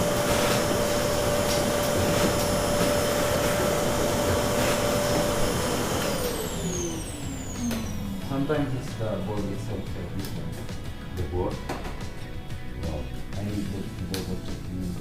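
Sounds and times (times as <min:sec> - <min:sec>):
electric motor whining: 0:00.0 - 0:10.6.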